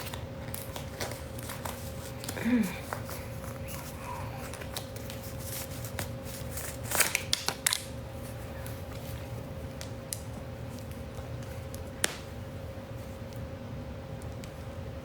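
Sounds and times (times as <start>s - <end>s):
rustling of handled things: 0.0s - 9.4s
faint steady hum: 0.0s - 15.0s.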